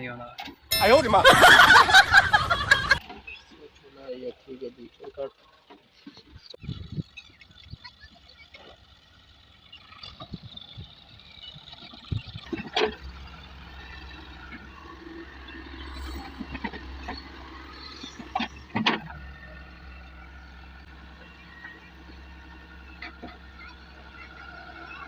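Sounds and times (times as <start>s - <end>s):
low engine rumble: 0.8s - 25.0s
tractor knocks and clunks: 8.2s - 14.8s, 15.6s - 19.7s, 21.5s - 24.3s.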